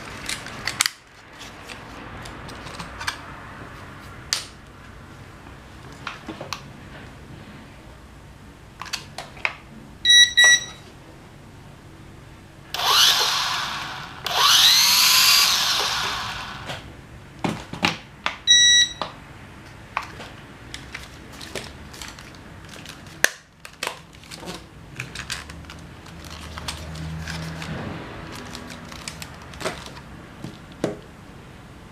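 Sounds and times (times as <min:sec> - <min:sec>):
short electronic beeps: 0:10.1 - 0:10.8, 0:18.5 - 0:19.0
drone motors whining: 0:12.7 - 0:16.8.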